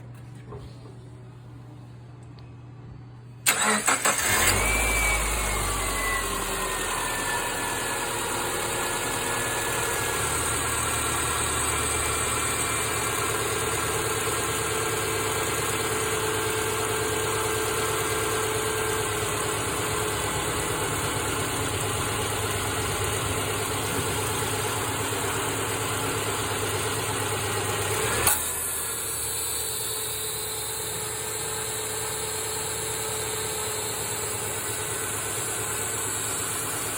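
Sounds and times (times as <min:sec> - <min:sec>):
car engine cranking: 0:03.5 - 0:05.6
car engine idling with whine: 0:04.2 - 0:36.9.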